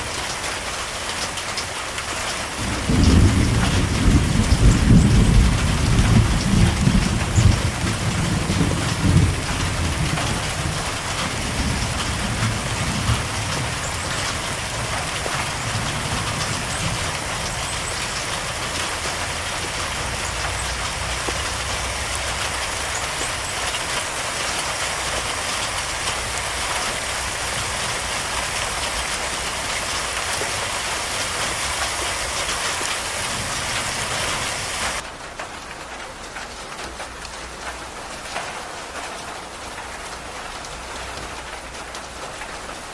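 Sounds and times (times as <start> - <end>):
heavy rain falling: 0.0 - 42.9
thunder rumble: 2.6 - 23.6.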